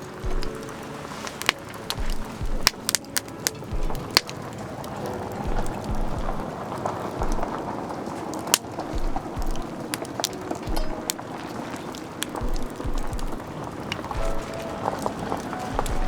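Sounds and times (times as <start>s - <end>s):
wood campfire crackling: 0.0s - 16.0s.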